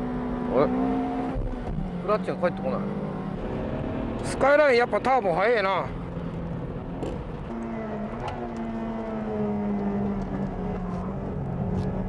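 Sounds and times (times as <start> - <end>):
sports car engine droning: 0.0 - 12.0.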